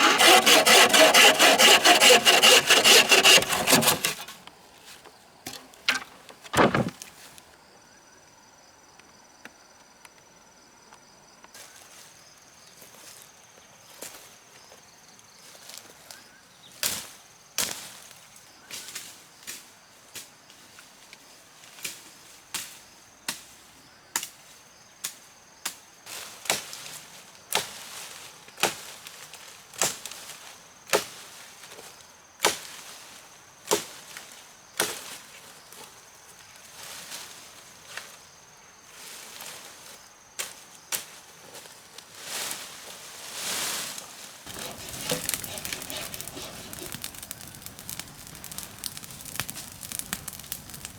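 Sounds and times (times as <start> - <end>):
sharp chopping blows: 0.0 - 4.3, 5.9 - 7.0, 44.5 - 48.6.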